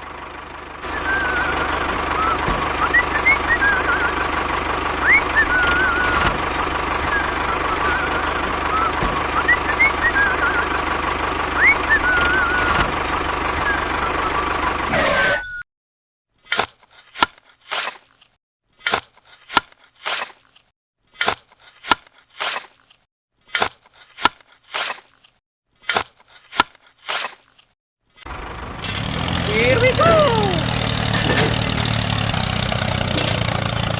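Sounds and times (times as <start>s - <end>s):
short sharp scraping strokes: 16.4s - 28.3s.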